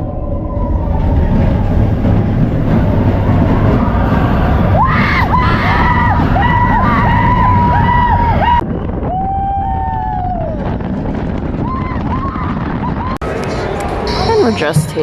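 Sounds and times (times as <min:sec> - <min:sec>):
roller coaster rumbling on track: 0:00.0 - 0:15.0
riders screaming: 0:03.0 - 0:10.7.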